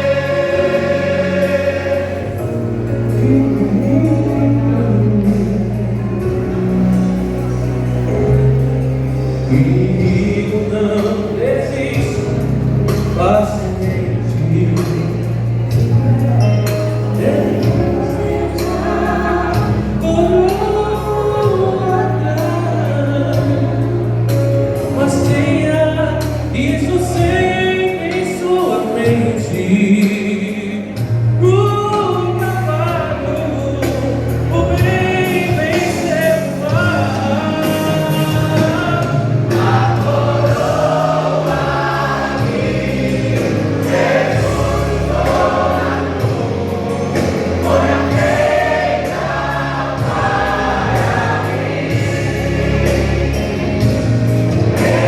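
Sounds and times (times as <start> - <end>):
vocal group singing in harmony: 0.0 - 7.1, 9.4 - 31.6, 32.3 - 55.0
sustained low bass notes: 0.0 - 55.0.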